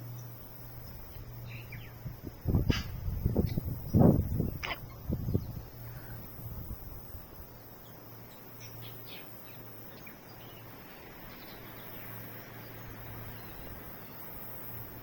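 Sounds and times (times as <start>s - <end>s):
faint bird calls: 2.6s - 6.4s.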